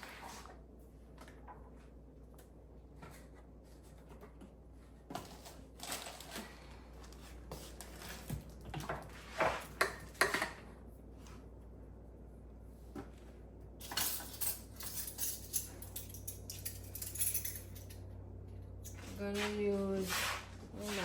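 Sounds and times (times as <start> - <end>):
kitchen containers knocking and clinking: 9.7 - 10.6.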